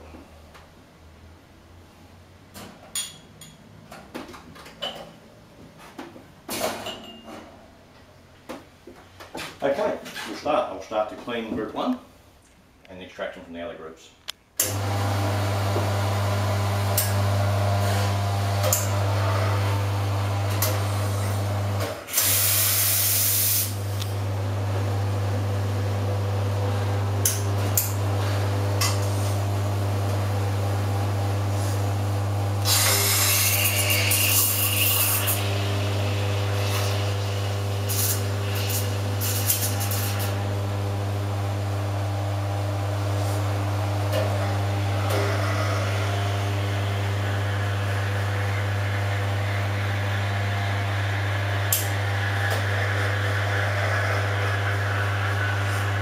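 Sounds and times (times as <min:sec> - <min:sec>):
espresso machine pump humming: 0:14.6 - 0:56.0.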